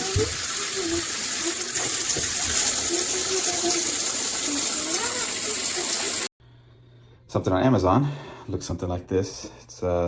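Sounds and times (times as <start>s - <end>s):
shower water spraying: 0.0s - 6.3s.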